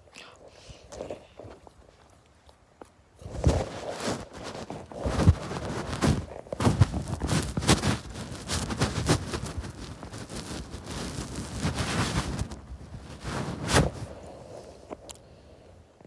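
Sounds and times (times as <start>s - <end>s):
snow crunching and scraping: 3.2s - 15.0s.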